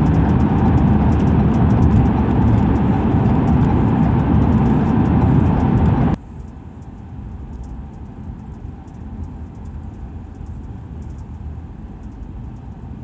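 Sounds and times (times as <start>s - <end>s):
low road rumble: 0.0s - 6.2s
wet road noise: 0.0s - 6.2s.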